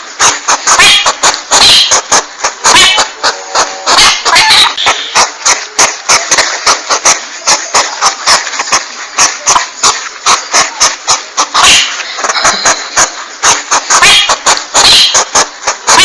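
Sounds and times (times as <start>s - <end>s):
hissy rasp: 0.0s - 16.0s
porcupine call sharp clicks: 9.8s - 16.0s.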